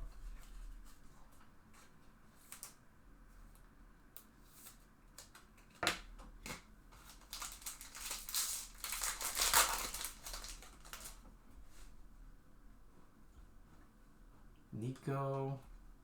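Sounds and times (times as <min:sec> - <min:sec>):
foil wrapper crinkling and tearing: 0:06.5 - 0:11.2.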